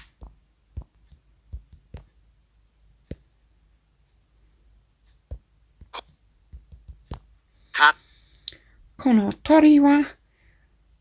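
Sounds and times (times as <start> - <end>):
fingertip taps on touchscreen: 0.1 - 2.2, 5.2 - 7.3.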